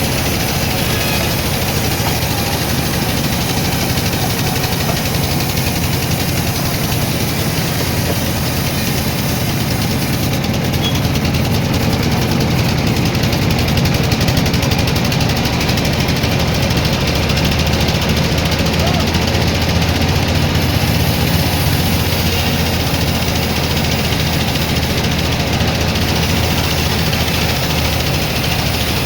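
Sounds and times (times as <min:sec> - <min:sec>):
sawmill engine humming: 0:00.0 - 0:29.0.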